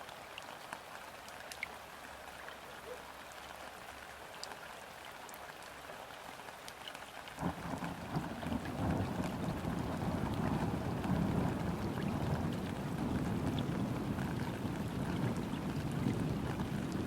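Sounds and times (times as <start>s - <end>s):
rain falling on river water: 0.0s - 17.0s
small drips ticking: 0.0s - 17.0s.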